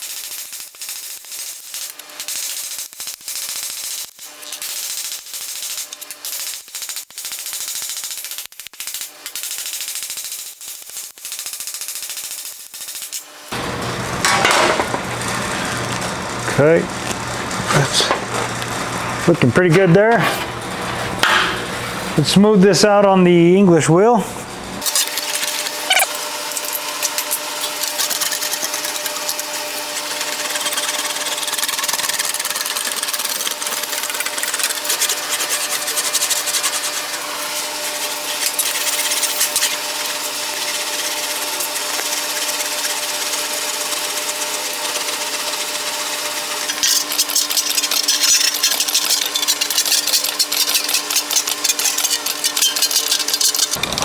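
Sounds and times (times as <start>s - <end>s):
steady hum: 13.5s - 24.8s
metallic rattling clatter: 46.7s - 54.0s.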